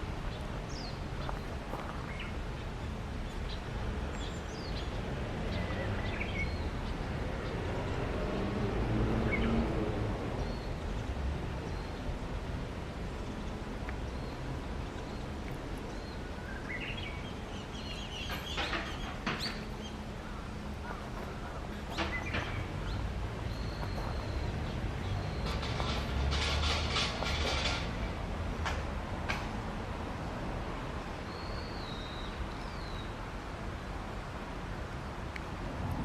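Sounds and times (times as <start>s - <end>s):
low outdoor rumble: 0.0s - 31.4s
warbler singing: 0.2s - 7.6s, 13.1s - 26.5s, 31.1s - 33.2s.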